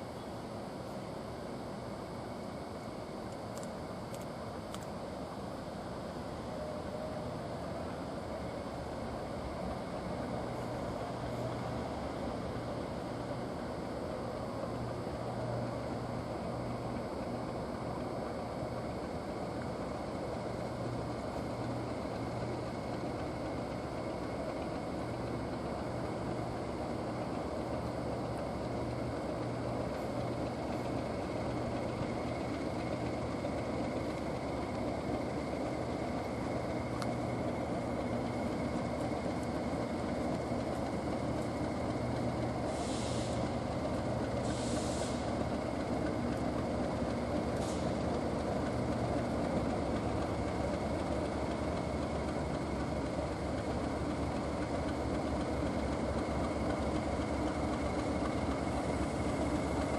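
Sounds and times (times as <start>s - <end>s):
diesel locomotive engine humming: 0.0s - 59.9s
short hisses of air: 42.7s - 43.6s, 44.4s - 45.4s, 47.6s - 48.0s.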